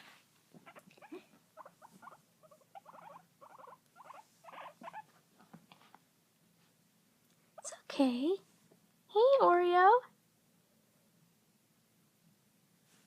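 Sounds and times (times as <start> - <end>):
guinea pigs squeaking: 0.6 - 5.1.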